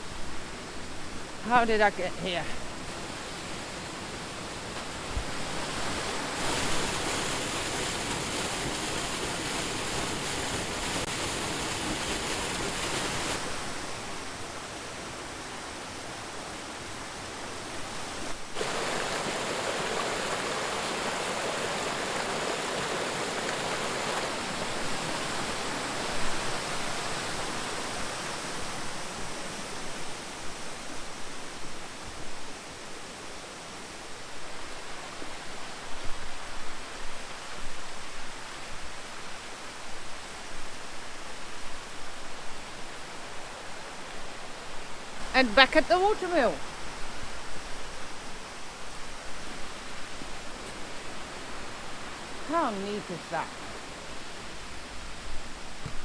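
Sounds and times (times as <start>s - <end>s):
waterfall roaring: 0.6s - 29.7s, 43.5s - 56.0s.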